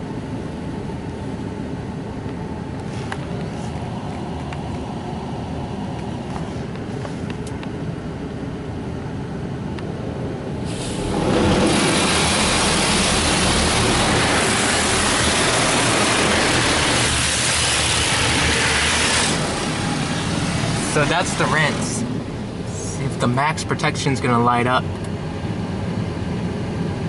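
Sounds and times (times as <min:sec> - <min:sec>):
car wash machinery rumble: 0:00.0 - 0:27.0
spray hissing on car: 0:10.6 - 0:23.0.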